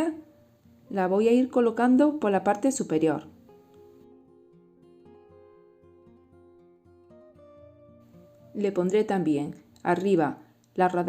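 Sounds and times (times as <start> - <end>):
acoustic guitar picking: 3.3 - 8.6.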